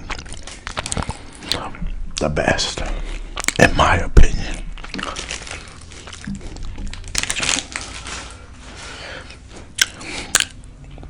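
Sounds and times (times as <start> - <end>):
chewing food: 0.0 - 2.3, 4.6 - 8.0, 9.3 - 11.0
wrapper crinkling: 4.7 - 9.0.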